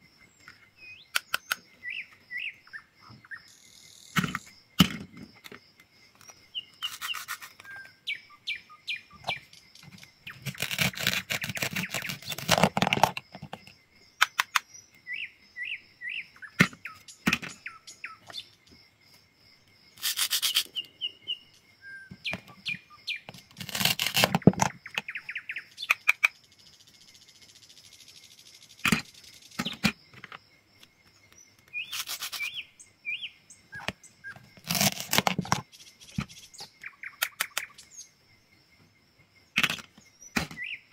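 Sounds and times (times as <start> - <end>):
birds chirping: 0.0 - 40.9
knife cutting through food: 6.8 - 7.7, 10.3 - 13.2, 20.0 - 20.7, 23.3 - 24.7, 31.9 - 32.6, 34.6 - 35.6.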